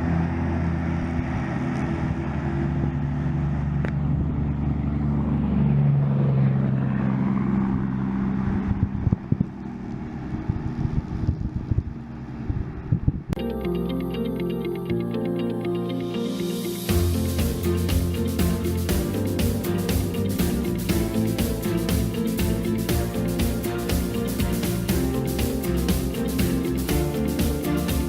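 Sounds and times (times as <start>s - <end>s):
wind crackling on microphone: 8.4s - 13.4s
diesel mower engine running: 16.8s - 28.0s.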